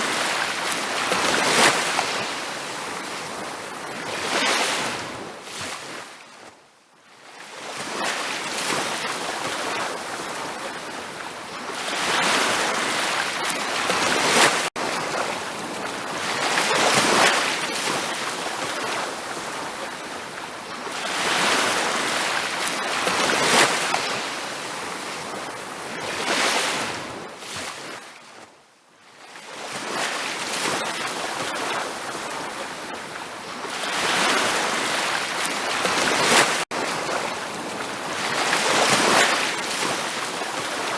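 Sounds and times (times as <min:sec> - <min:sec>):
ocean waves breaking on beach: 0:00.0 - 0:28.5, 0:29.1 - 0:40.9.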